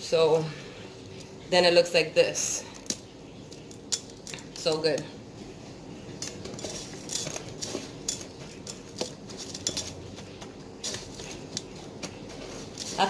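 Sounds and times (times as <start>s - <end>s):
soft rustling: 5.4s - 13.0s
dishes and utensils clinking: 6.2s - 13.0s.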